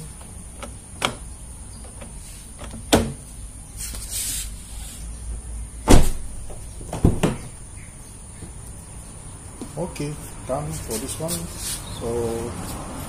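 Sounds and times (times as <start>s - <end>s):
car door knocks and clicks: 0.6s - 1.2s, 1.8s - 3.2s, 5.9s - 7.5s.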